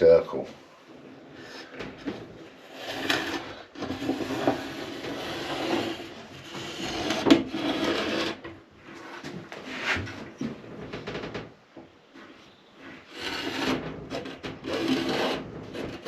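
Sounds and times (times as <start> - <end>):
tool scraping wood: 1.4 - 10.3, 12.8 - 16.0.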